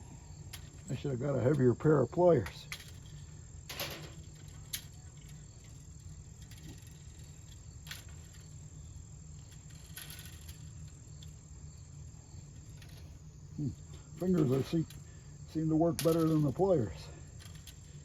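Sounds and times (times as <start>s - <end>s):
crickets trilling: 0.0s - 18.0s
metal rake tines scraping: 9.4s - 11.1s, 13.9s - 18.0s.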